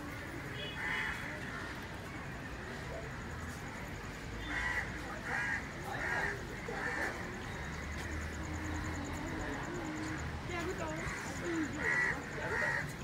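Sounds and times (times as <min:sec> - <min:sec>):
low outdoor background: 0:00.0 - 0:13.0.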